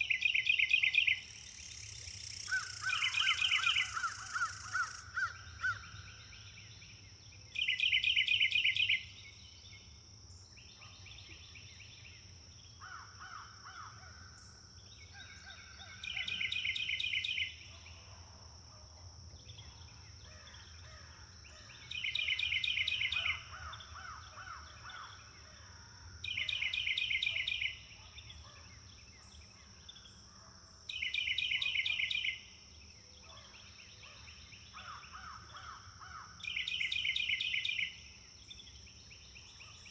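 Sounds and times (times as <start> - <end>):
quieter birds calling: 0.0 - 18.0.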